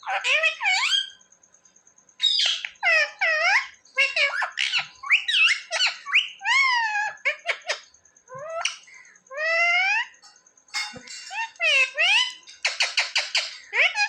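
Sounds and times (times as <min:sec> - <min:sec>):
parakeet squeaky calls: 0:02.2 - 0:07.8, 0:08.4 - 0:14.0.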